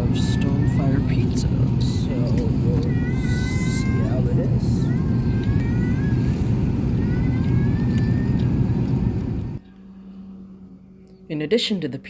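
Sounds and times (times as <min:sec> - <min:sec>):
aircraft cabin engine rumble: 0:00.0 - 0:09.6
faint steady hum: 0:00.0 - 0:12.0.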